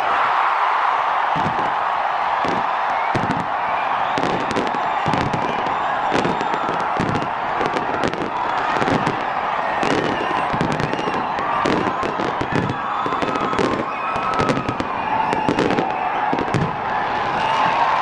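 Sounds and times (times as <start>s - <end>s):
fireworks bangs and crackling: 0.4s - 18.0s.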